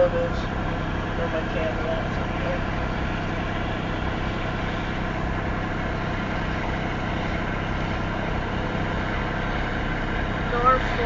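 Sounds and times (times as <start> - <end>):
engine idling hum: 0.0 - 11.0.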